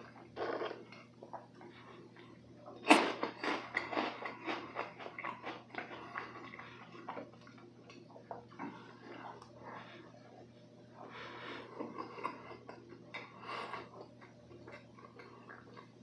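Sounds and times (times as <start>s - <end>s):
cookie crunching: 0.0s - 10.5s.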